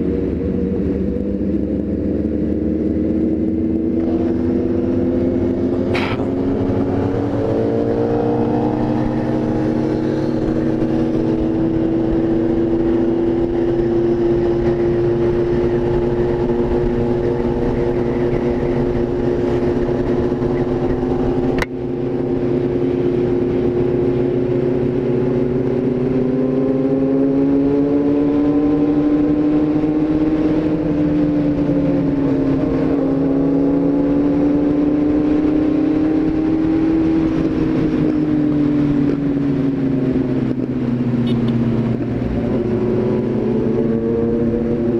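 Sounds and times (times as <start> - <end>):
car engine running: 0.0 - 44.9.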